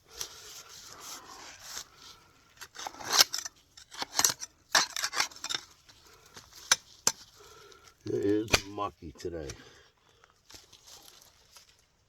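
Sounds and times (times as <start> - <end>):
digging tool scraping wet soil: 0.1 - 7.4.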